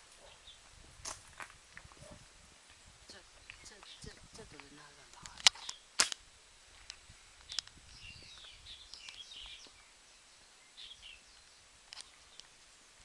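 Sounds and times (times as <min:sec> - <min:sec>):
small birds chirping: 0:00.0 - 0:00.7, 0:02.0 - 0:06.0, 0:06.7 - 0:12.8
faint sharp clicks: 0:06.8 - 0:09.8.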